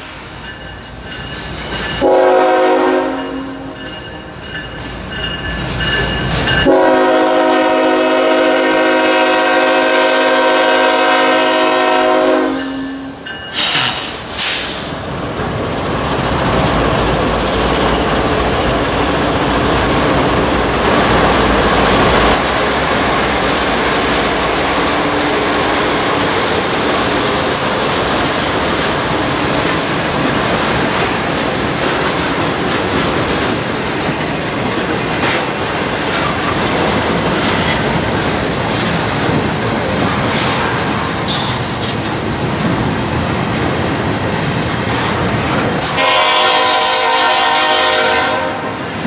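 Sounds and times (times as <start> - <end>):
diesel locomotive engines rumbling: 0.0 - 49.0
wheels clicking over rail joints: 25.4 - 46.0
freight car wheel and rail clatter: 26.0 - 46.0.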